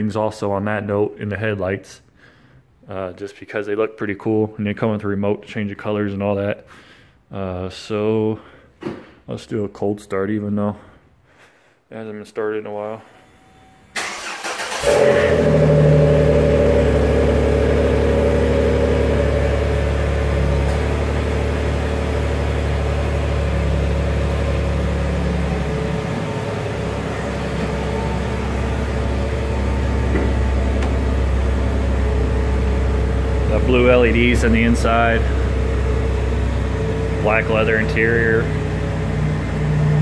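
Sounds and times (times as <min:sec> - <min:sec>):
car engine starting and idling: 0:13.4 - 0:40.0.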